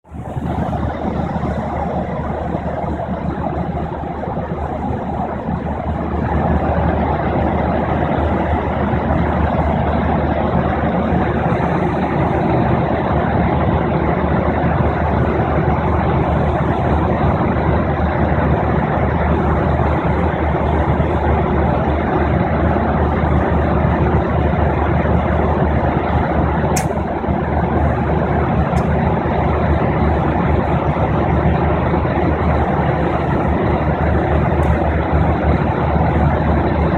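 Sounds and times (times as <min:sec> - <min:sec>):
jet airliner cabin noise: 0:00.0 - 0:36.9.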